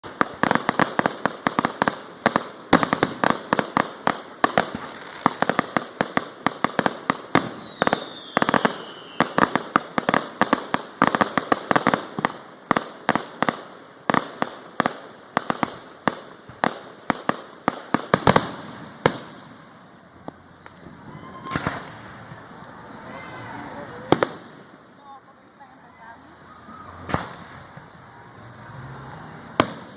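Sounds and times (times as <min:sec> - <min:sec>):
fireworks bangs and crackles: 0:00.0 - 0:29.9
falling firework whistle: 0:07.4 - 0:09.5, 0:20.9 - 0:24.2, 0:26.5 - 0:28.3.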